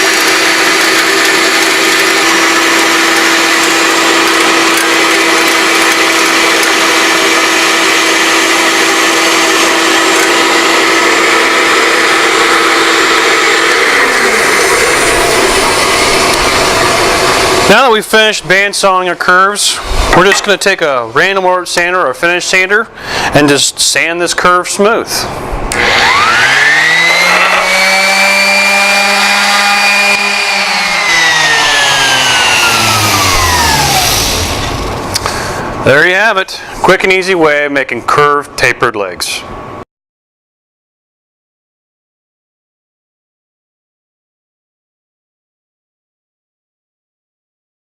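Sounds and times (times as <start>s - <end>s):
electric sander whining: 0.0s - 17.9s, 25.7s - 35.4s
bandsaw cutting wood: 0.0s - 18.0s, 25.7s - 35.5s
saw spinning down: 0.0s - 18.0s, 25.7s - 35.4s.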